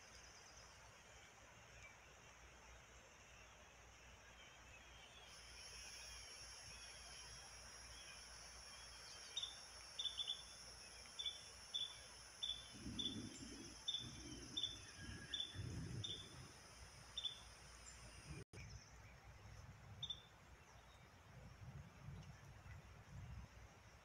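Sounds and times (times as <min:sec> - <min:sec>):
insects droning: 0:00.0 - 0:18.5
bird chirping: 0:07.9 - 0:16.4, 0:17.1 - 0:19.1.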